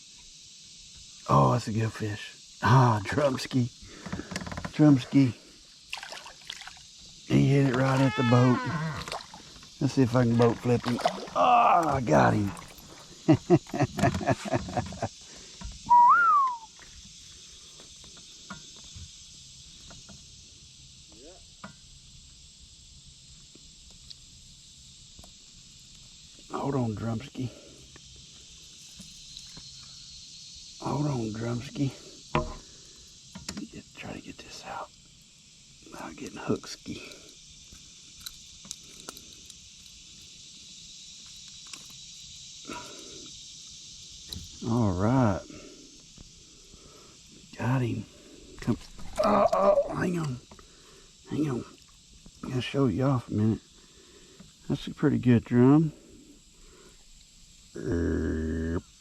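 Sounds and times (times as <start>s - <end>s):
insects chorus: 0.0s - 59.0s
loud whistle-like tone: 15.8s - 16.8s.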